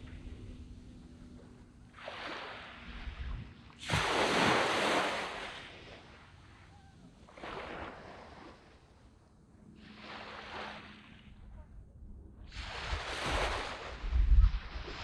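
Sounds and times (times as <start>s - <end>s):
sea waves breaking on beach: 1.3s - 9.0s, 9.8s - 11.4s, 12.5s - 15.0s.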